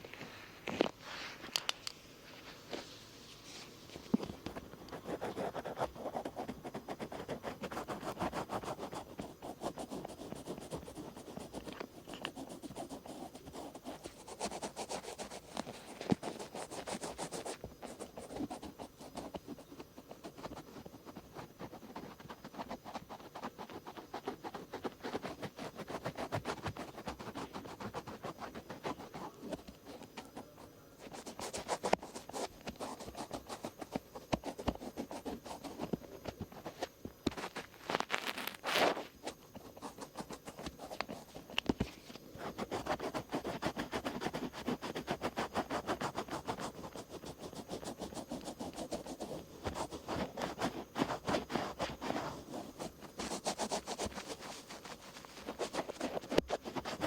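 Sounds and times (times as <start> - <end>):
cotton swabs scratching ear: 42.6 - 57.0.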